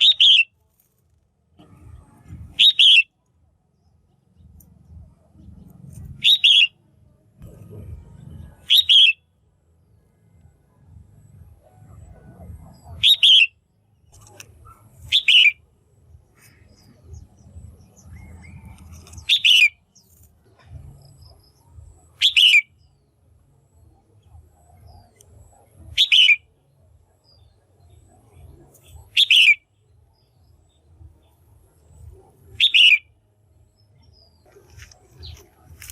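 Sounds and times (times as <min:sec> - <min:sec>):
bird giving sharp calls: 0:00.0 - 0:00.5, 0:02.5 - 0:03.1, 0:06.1 - 0:06.7, 0:08.6 - 0:09.2, 0:12.8 - 0:13.5, 0:14.6 - 0:15.6, 0:18.5 - 0:20.0, 0:22.1 - 0:22.8, 0:25.9 - 0:26.4, 0:29.0 - 0:29.6, 0:32.5 - 0:33.1
faint low hum: 0:00.0 - 0:35.9.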